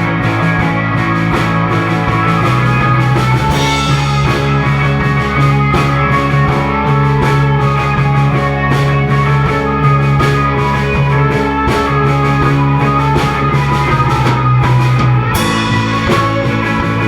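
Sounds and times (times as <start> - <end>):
rock band playing: 0.0 - 17.0
cymbal crash: 9.6 - 17.0.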